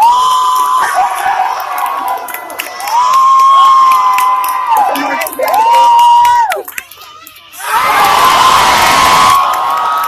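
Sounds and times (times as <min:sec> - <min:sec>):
teenagers yelling together: 0:07.5 - 0:10.0.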